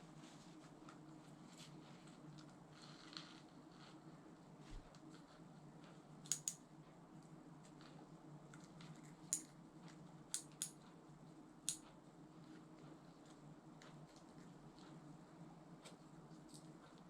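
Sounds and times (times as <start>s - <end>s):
small parts clicking and tapping: 5.8s - 6.6s, 7.6s - 10.8s.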